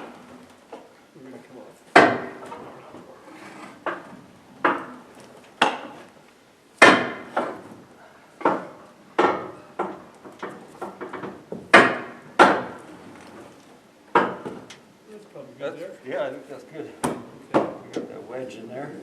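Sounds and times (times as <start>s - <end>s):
wooden wedge knocks: 8.4s - 12.8s, 17.0s - 18.1s.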